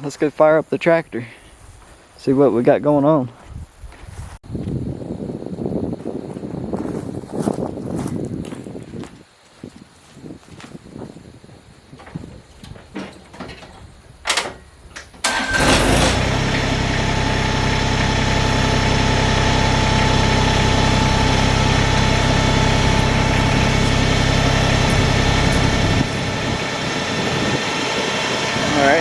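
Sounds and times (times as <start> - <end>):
tractor engine starter cranking: 11.9 - 27.1
clicks and knocks: 12.0 - 15.5
diesel engine idling: 12.0 - 29.0.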